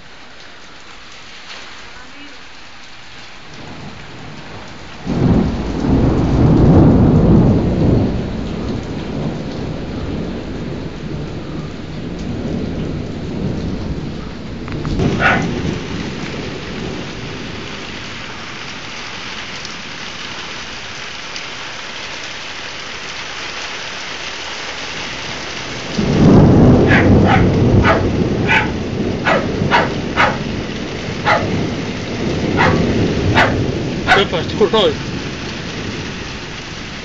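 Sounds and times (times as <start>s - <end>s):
heavy rain falling: 0.0s - 37.0s
thunder rumbling: 3.5s - 20.6s, 24.9s - 37.0s.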